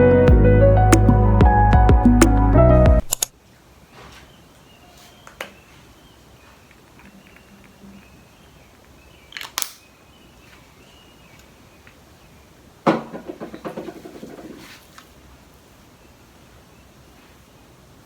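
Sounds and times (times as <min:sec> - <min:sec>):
brief crackle: 0:09.3 - 0:09.9.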